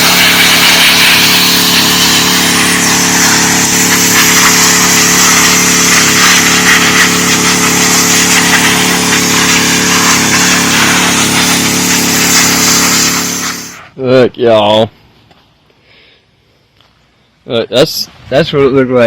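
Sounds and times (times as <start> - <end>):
pressure washer engine running: 0.0 - 13.9
water jet hissing on concrete: 0.0 - 13.9.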